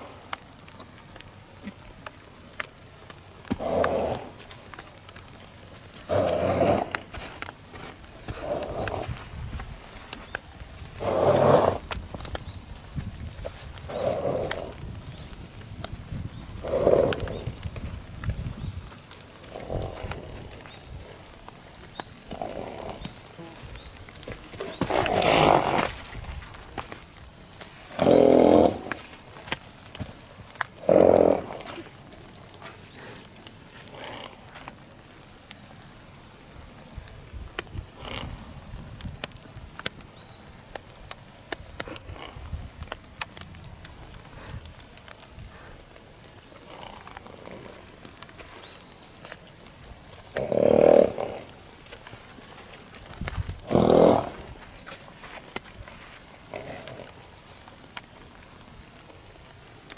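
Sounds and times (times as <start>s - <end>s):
horse vocalizing: 3.5s - 4.6s, 5.9s - 7.3s, 8.2s - 9.2s, 11.0s - 12.0s, 13.4s - 14.8s, 16.6s - 17.6s, 19.4s - 21.3s, 22.2s - 26.2s, 27.8s - 29.3s, 30.7s - 34.7s, 50.2s - 51.6s, 53.6s - 55.6s, 56.2s - 57.2s.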